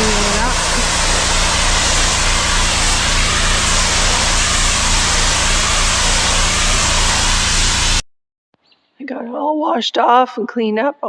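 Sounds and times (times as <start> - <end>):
pressure washer engine running: 0.0 - 8.0
water spray hiss: 0.0 - 8.0.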